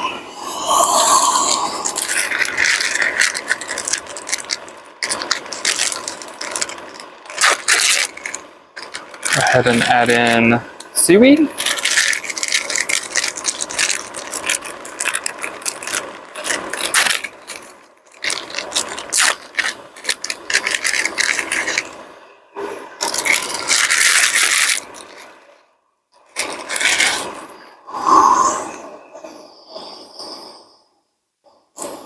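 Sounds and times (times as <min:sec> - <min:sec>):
scraping in a pot: 0:00.4 - 0:10.4
packaging crinkling: 0:00.5 - 0:22.0, 0:23.0 - 0:25.5, 0:26.2 - 0:27.5.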